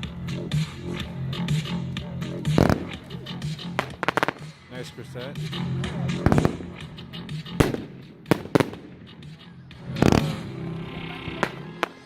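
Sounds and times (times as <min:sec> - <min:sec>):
firework bangs: 0:02.4 - 0:04.7, 0:06.2 - 0:06.8, 0:07.6 - 0:10.6, 0:11.3 - 0:12.0.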